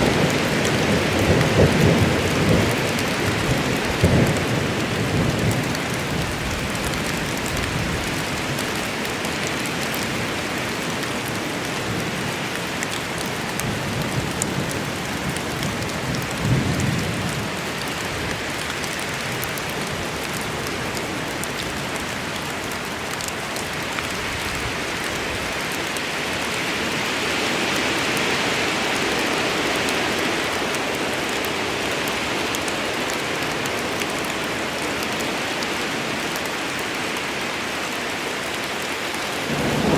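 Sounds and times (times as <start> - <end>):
low rumble of thunder: 0.0 - 8.1, 39.4 - 39.9
rain falling on foliage: 0.0 - 39.9.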